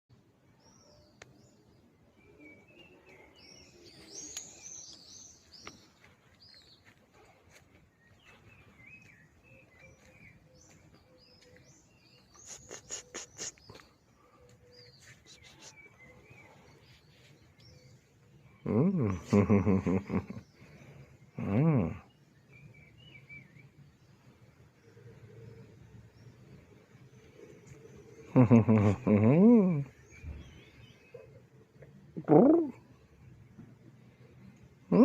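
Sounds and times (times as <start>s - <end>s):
small birds chirping: 0.2s - 35.0s
quick run of sharp ticks: 12.3s - 13.9s.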